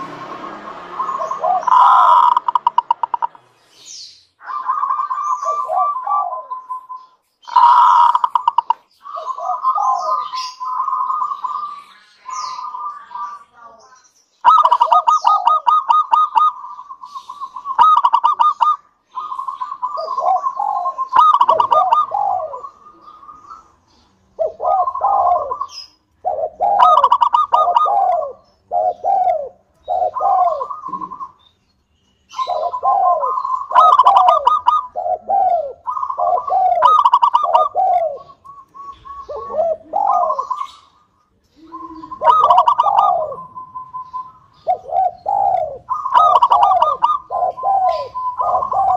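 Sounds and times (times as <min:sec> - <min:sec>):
dove cooing: 0:00.0 - 0:03.4, 0:04.4 - 0:13.6, 0:14.4 - 0:31.5, 0:32.3 - 0:48.9.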